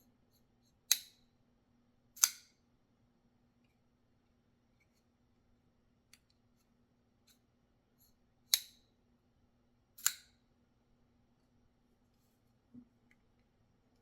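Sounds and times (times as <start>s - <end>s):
light knife clicks: 2.2s - 2.4s, 10.0s - 10.3s
knife blade snapping open: 10.0s - 10.2s.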